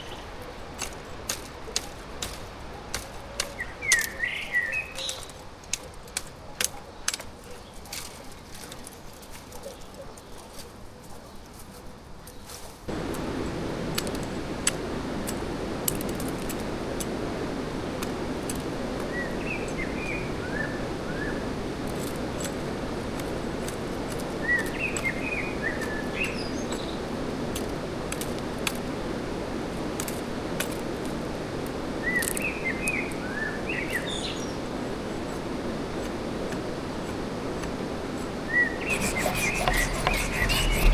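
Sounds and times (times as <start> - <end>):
stream rushing: 12.9 - 38.2.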